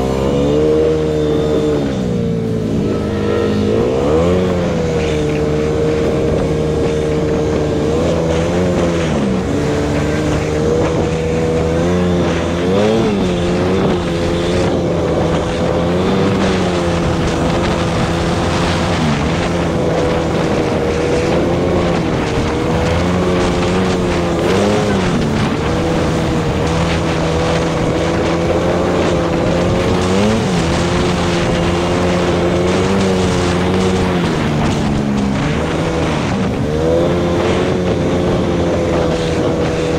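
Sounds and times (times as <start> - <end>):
atv engine under throttle: 0.0 - 39.9.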